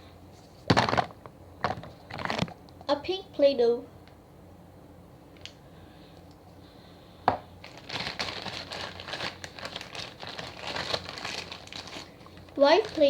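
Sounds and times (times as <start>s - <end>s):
wrapping crinkling: 1.7s - 2.6s, 7.6s - 13.0s.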